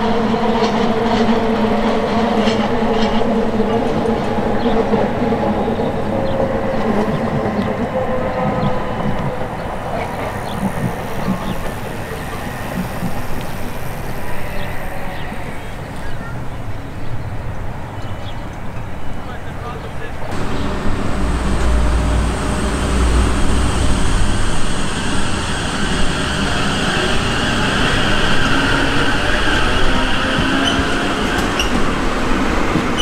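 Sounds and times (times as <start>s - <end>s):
train wheels rumbling on rail: 0.0s - 33.0s
traction motor hum: 9.6s - 15.8s, 20.3s - 31.3s.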